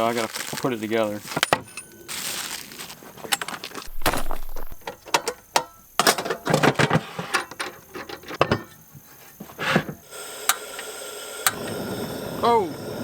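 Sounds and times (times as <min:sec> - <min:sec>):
gas burner hissing: 0:00.0 - 0:13.0
metal clicks and rattles: 0:03.3 - 0:08.7.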